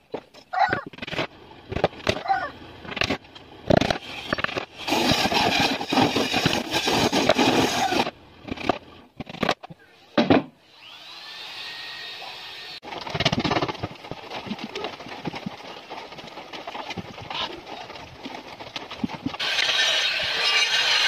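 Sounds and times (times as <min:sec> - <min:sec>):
rough scraping on wood: 0:03.8 - 0:09.0, 0:12.8 - 0:21.0.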